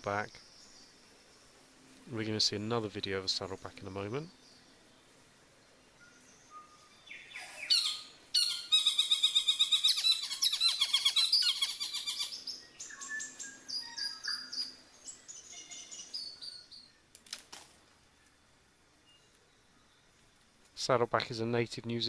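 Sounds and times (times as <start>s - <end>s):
songbirds calling: 0.0s - 22.0s
rapid bird chatter: 7.1s - 16.8s
brief rustle: 17.1s - 18.4s.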